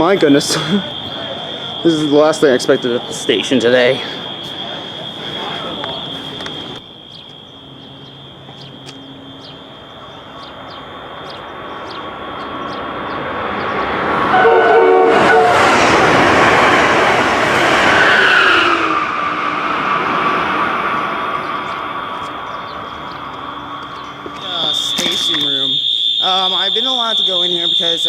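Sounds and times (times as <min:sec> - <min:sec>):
train passing at speed: 0:00.0 - 0:07.0, 0:07.6 - 0:28.0
train horn blast: 0:14.2 - 0:25.1.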